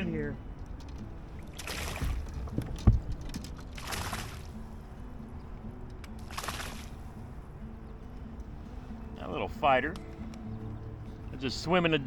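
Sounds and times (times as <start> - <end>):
fish splashing at surface: 1.5 - 2.4, 3.7 - 4.5, 6.2 - 6.9.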